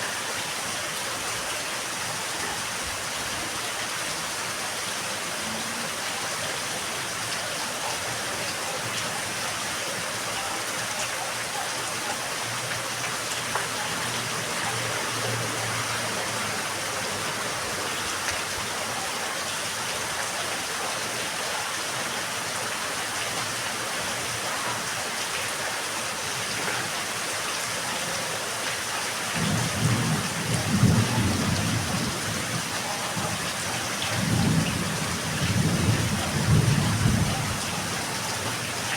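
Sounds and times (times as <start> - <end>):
steady rain falling: 0.0 - 38.9
rumble of thunder: 29.4 - 38.0.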